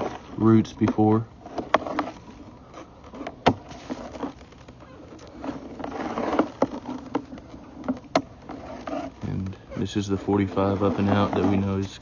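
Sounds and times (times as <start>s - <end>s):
rod scraping in pipe: 5.2s - 12.0s.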